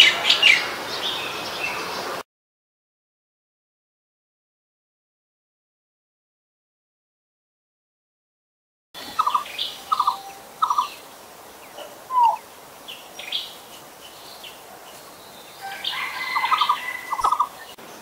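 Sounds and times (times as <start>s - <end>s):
bird trilled calls: 9.0s - 14.6s, 15.2s - 17.8s
higher bird chirps: 9.0s - 18.0s.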